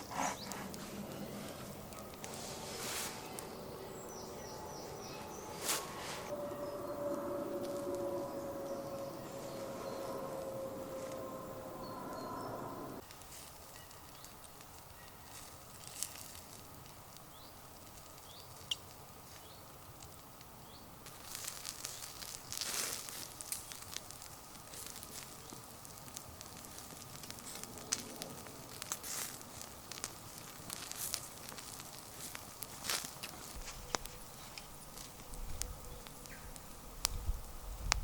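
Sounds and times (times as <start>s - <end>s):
campfire crackling and popping: 0.0s - 6.4s, 13.0s - 38.0s
steady hum: 0.0s - 13.0s.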